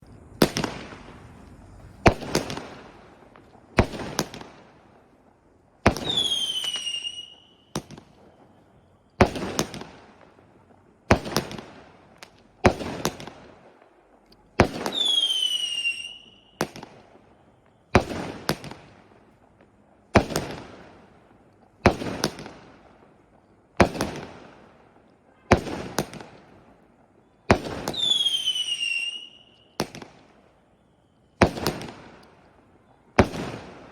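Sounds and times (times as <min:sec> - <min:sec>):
firework bangs with crackle: 0:00.0 - 0:33.9
falling firework whistle: 0:05.9 - 0:09.8, 0:14.7 - 0:18.9, 0:25.1 - 0:33.9.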